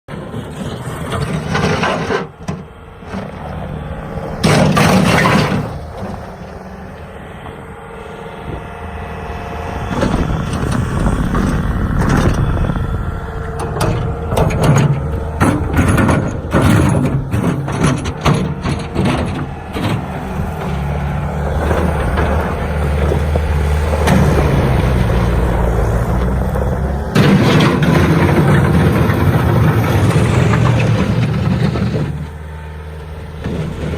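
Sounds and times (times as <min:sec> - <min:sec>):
diesel engine running: 0:00.1 - 0:33.9
clanks and knocks: 0:00.4 - 0:07.6, 0:09.9 - 0:33.9.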